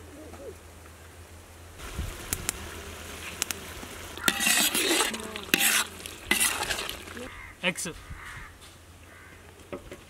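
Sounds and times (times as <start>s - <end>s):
masala sizzling in oil: 1.8s - 7.3s
ladle scraping pan: 4.2s - 7.3s.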